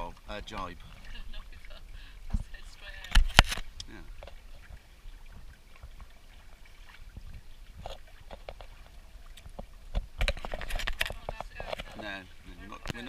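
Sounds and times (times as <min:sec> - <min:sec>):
water splashing against hulls: 0:00.0 - 0:13.0
wind rumble on microphone: 0:00.8 - 0:06.3, 0:07.0 - 0:08.6.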